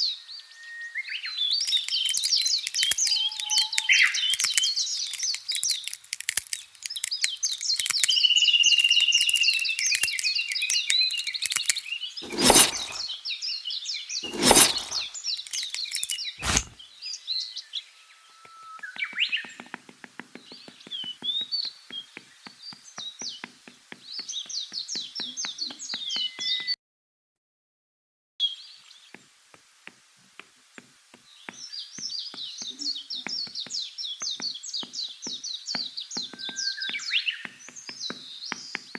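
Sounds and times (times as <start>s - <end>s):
small birds chirping: 1.0s - 26.8s, 28.4s - 38.9s
sharp knocks: 18.5s - 26.8s, 29.2s - 38.9s.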